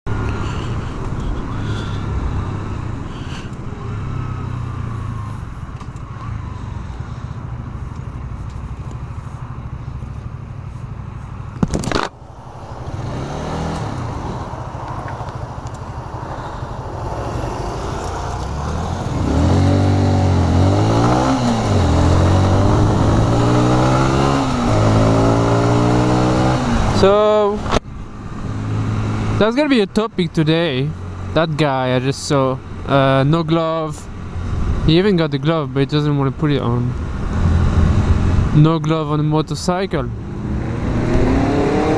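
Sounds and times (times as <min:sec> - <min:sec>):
motorcycle engine revving: 0:11.6 - 0:27.1, 0:40.1 - 0:41.9
wind rush: 0:11.7 - 0:27.0.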